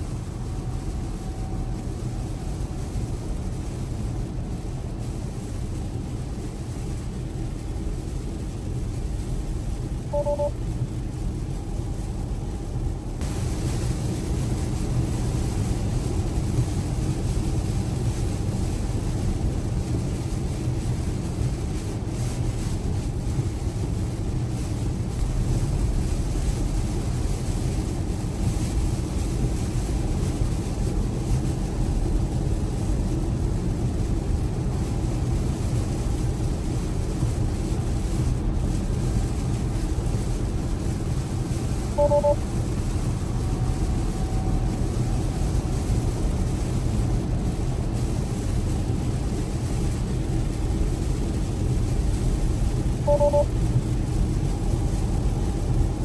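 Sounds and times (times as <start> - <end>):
heavy rain on car: 0.0 - 56.0
short electronic chime: 10.2 - 10.5, 42.0 - 42.4, 53.1 - 53.5.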